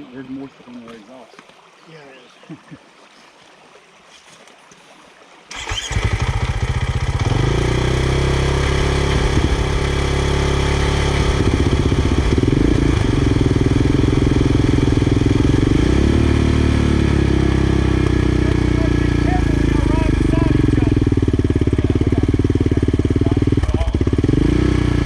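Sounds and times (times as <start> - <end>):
motorcycle engine starting and running: 5.5 - 25.0.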